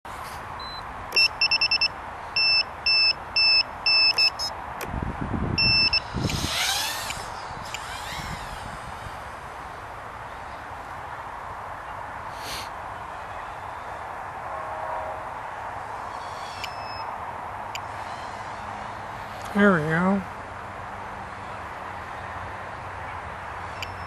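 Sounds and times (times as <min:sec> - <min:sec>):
high-pitched buzzer beeps: 0:00.6 - 0:04.5, 0:05.6 - 0:06.4, 0:16.5 - 0:17.1, 0:23.8 - 0:24.0.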